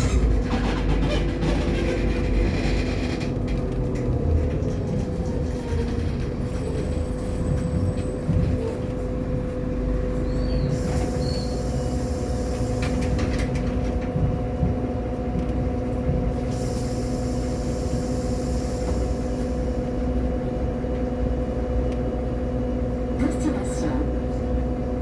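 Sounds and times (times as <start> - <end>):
bus engine rumble: 0.0 - 25.0.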